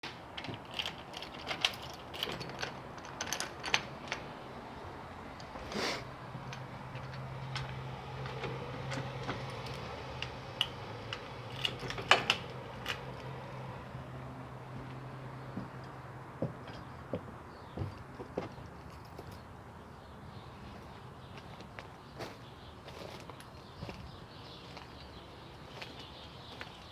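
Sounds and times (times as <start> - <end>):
small clicks and knocks: 6.4 - 13.4.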